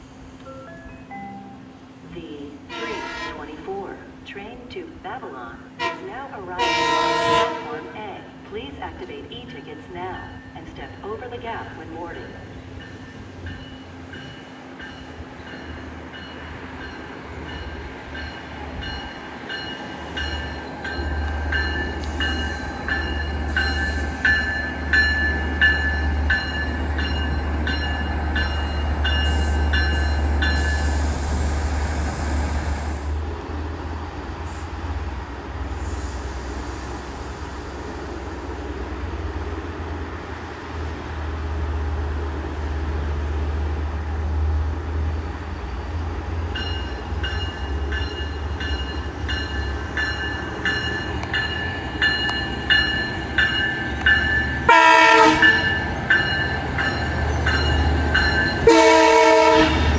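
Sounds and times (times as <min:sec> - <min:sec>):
train engine rumbling: 0:00.0 - 0:59.9.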